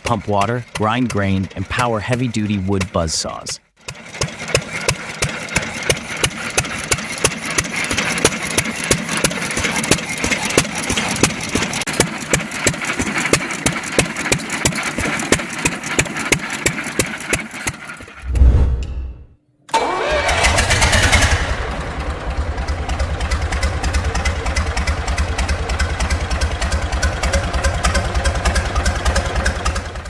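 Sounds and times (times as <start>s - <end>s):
single-cylinder engine clattering: 0.0s - 18.2s, 19.7s - 30.0s
loud low thump: 18.2s - 19.3s.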